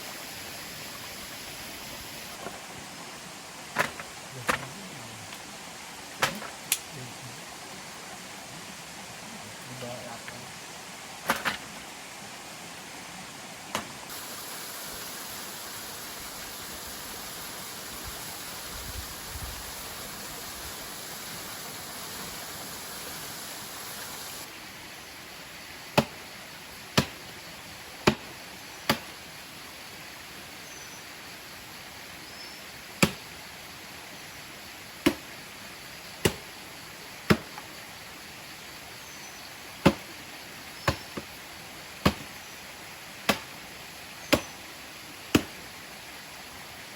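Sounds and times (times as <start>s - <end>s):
forest insects: 0.0s - 46.9s
waterfall hiss: 0.0s - 46.9s
sharp chopping strokes: 26.0s - 26.2s, 27.0s - 27.2s, 28.0s - 28.3s, 28.9s - 29.1s, 33.0s - 33.2s, 35.0s - 35.3s, 36.2s - 36.4s, 37.3s - 37.6s, 39.8s - 40.1s, 40.9s - 41.3s, 42.0s - 42.4s, 43.3s - 43.5s, 44.3s - 44.5s, 45.3s - 45.6s.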